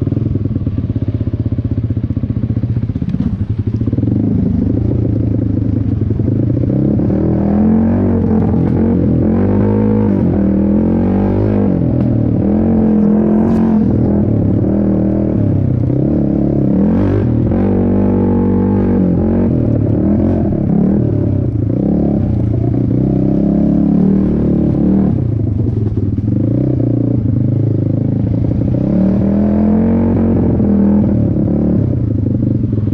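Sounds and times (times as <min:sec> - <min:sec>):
quad engine revving hard: 0:06.7 - 0:25.3.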